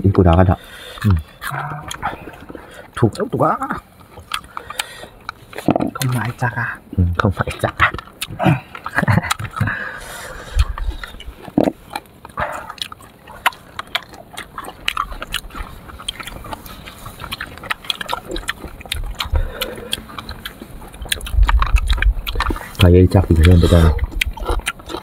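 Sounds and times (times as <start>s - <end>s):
wet chewing: 0.0s - 25.0s
person murmuring: 0.3s - 2.2s, 22.8s - 24.1s
lip smacks: 0.3s - 3.0s, 4.1s - 6.3s, 7.5s - 25.0s.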